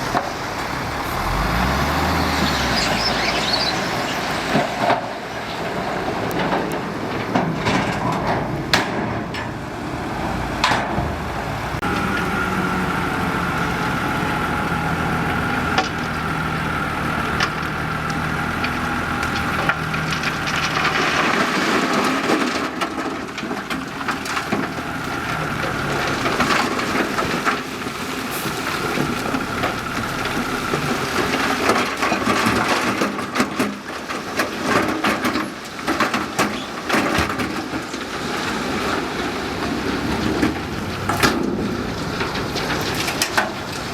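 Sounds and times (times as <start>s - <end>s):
earth and rock sliding out: 0.0s - 5.2s, 19.3s - 33.0s
diesel engine running: 0.0s - 34.9s, 35.6s - 43.9s.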